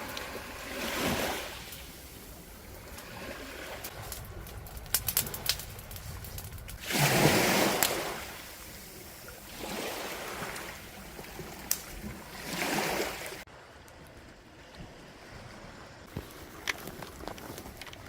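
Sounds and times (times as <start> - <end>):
sea waves washing on shore: 0.0 - 13.7.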